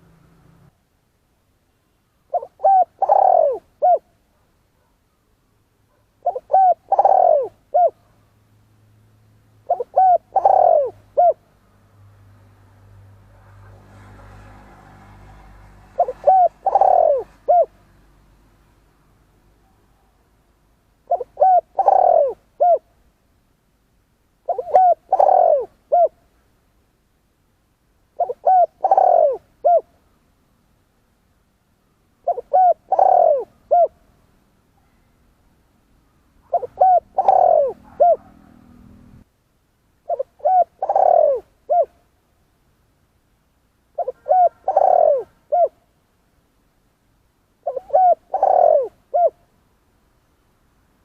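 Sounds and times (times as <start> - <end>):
dove cooing: 2.3 - 4.1, 5.9 - 8.1, 9.6 - 11.4, 15.4 - 17.8, 21.0 - 22.9, 24.4 - 26.2, 28.2 - 29.9, 32.2 - 34.0, 36.4 - 39.2, 40.0 - 42.0, 44.0 - 45.9, 47.6 - 49.4.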